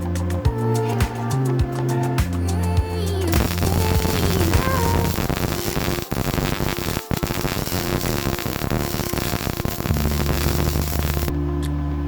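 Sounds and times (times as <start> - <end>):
welding arc crackle: 3.3 - 11.3.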